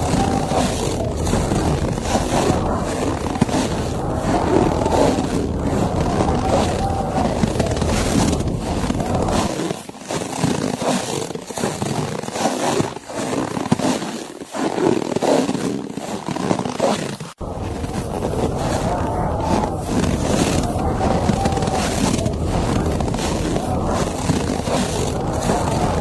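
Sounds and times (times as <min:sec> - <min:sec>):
blizzard wind gusting: 0:00.0 - 0:09.5, 0:17.4 - 0:26.0
deep rumble: 0:00.0 - 0:09.5, 0:17.4 - 0:26.0.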